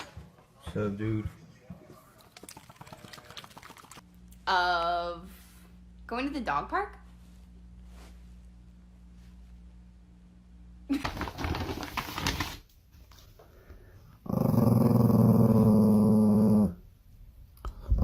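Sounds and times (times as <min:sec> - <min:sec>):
dog growling: 0:14.2 - 0:16.8.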